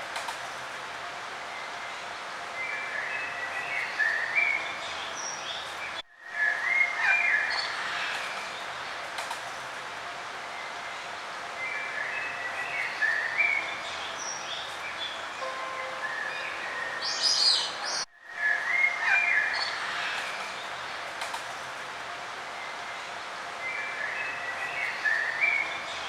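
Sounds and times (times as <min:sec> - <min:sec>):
steady background hiss: 0:00.0 - 0:26.0
songbirds chirping and singing: 0:11.6 - 0:20.4.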